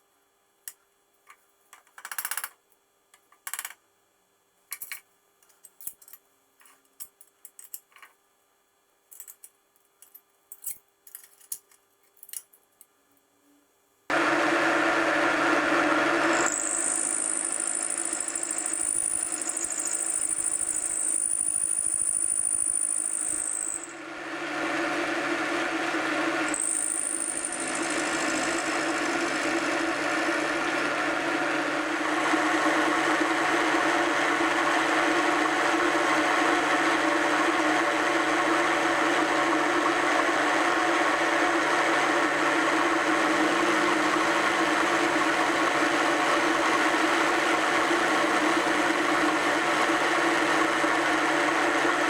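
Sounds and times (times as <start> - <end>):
milling machine running: 14.1 - 52.0.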